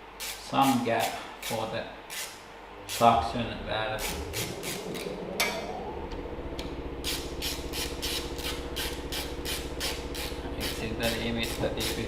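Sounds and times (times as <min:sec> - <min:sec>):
lawn mower engine running: 0:04.0 - 0:12.0.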